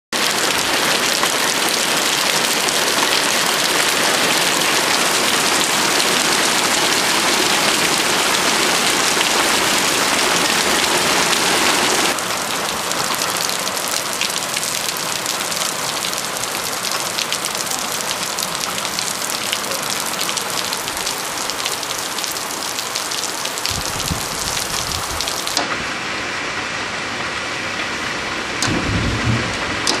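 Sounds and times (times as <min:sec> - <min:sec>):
heavy rain and hail pelting: 0:00.2 - 0:25.6, 0:26.6 - 0:30.0
low rumbles: 0:28.6 - 0:30.0.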